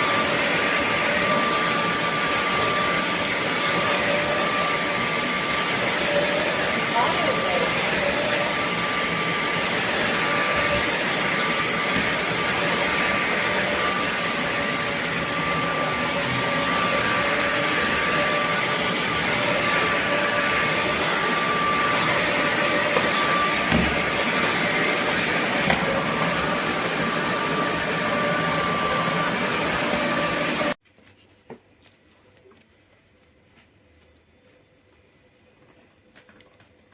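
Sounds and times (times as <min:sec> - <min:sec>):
vacuum cleaner running: 0:00.0 - 0:30.8.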